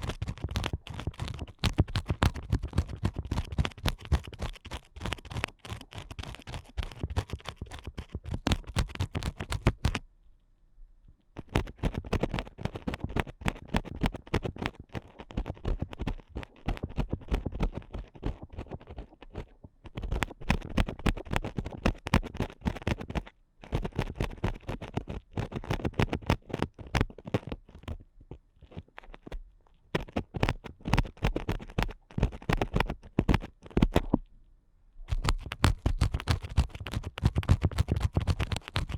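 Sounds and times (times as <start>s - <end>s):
ear picks scraping microphone: 35.1s - 38.9s.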